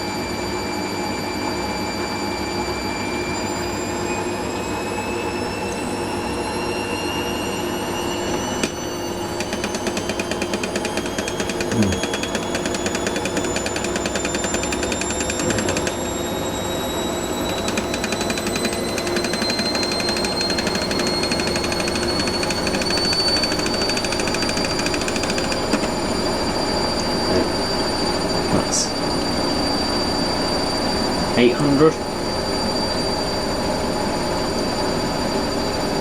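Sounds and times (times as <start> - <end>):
washing machine motor whine: 0.0 - 36.0.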